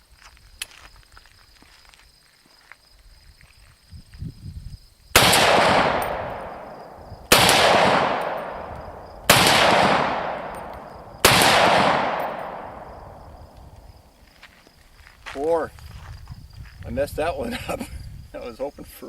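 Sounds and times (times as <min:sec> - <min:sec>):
rifle shots with echo: 0:05.2 - 0:13.4.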